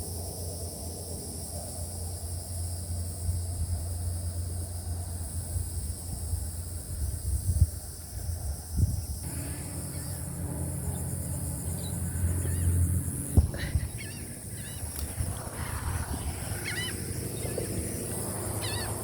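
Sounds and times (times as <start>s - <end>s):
birds calling: 9.2s - 19.0s
steady low rumble: 9.2s - 19.0s.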